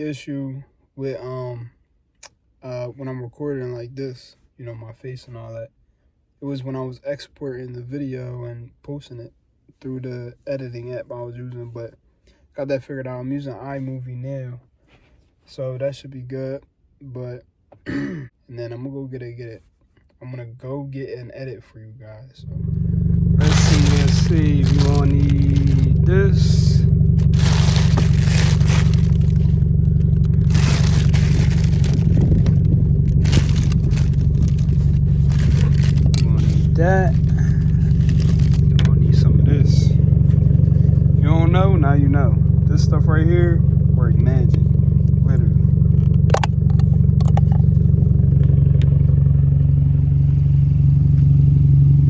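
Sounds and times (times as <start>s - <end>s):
car engine idling: 22.4s - 52.0s
objects rustling and scraping: 23.4s - 39.3s.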